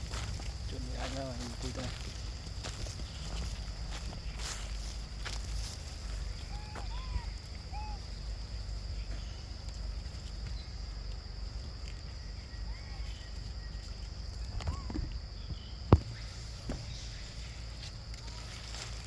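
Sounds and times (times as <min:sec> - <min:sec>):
insect drone: 0:00.0 - 0:19.0
short chirping calls: 0:06.2 - 0:09.6.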